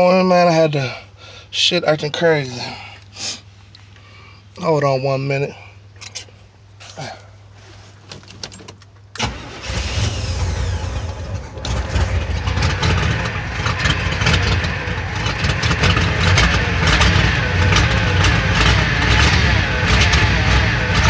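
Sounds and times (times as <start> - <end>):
car engine running unevenly: 9.2 - 21.0.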